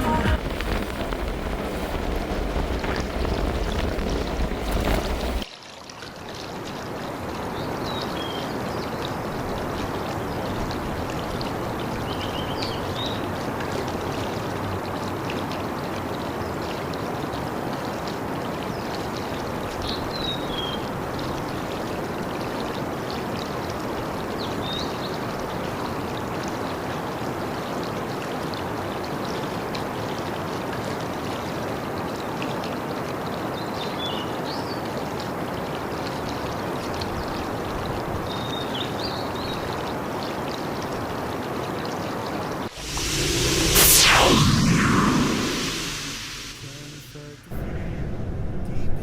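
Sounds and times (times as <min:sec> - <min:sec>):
loud deep rumble: 0:42.8 - 0:49.0.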